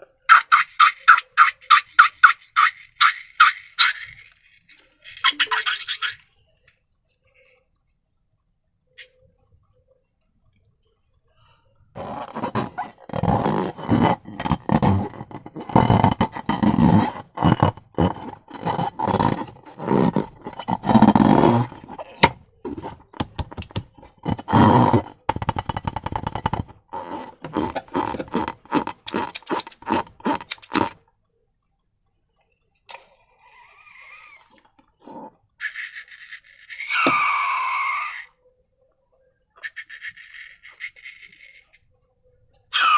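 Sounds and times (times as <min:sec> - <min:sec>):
short squeaks sliding in pitch: 0:39.6 - 0:41.8.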